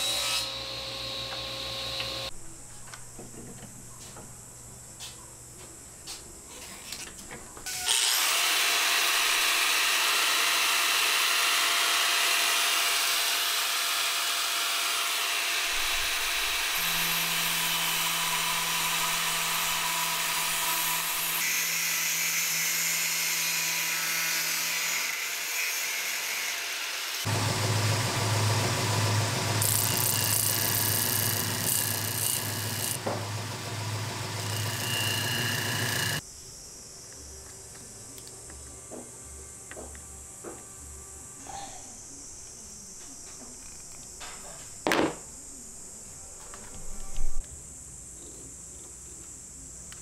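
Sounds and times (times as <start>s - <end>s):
power tool running with hiss: 7.7s - 36.2s.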